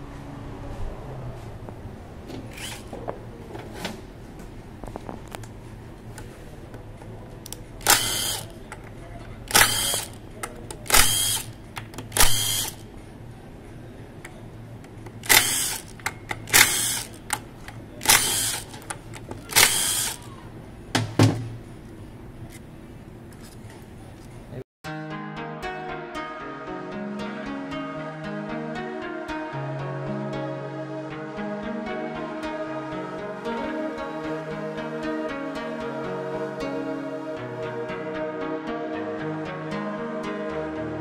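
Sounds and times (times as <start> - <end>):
steady low hum: 0.0 - 24.6
power tool bursts: 7.8 - 8.6, 9.5 - 10.2, 10.9 - 12.8, 15.2 - 17.3, 18.0 - 18.8, 19.5 - 20.3.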